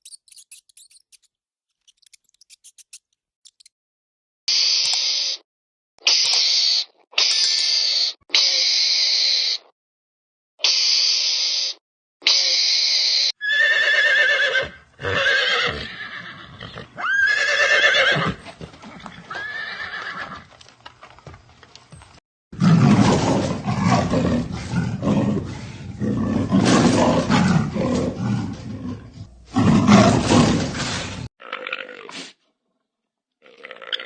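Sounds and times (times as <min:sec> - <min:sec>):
horse neighing: 0:13.4 - 0:20.5
rough animal sound: 0:22.6 - 0:32.4.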